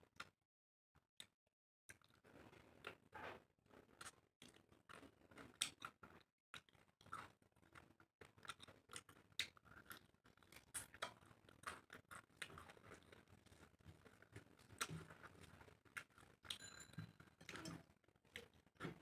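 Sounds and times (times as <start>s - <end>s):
person chewing: 3.9s - 16.6s.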